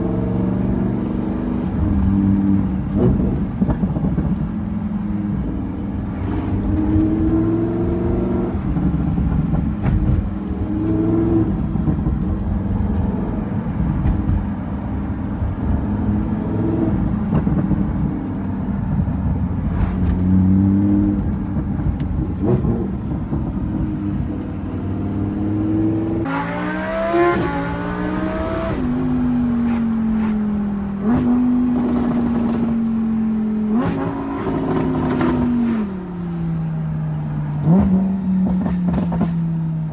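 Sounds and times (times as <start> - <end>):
sports car exhaust revving: 5.0 - 35.6.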